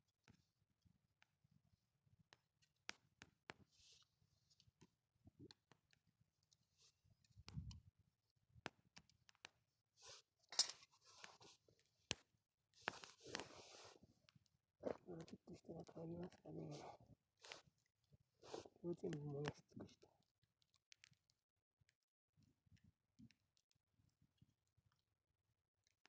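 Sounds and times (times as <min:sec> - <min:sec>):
faint campfire crackle: 0:11.0 - 0:22.0.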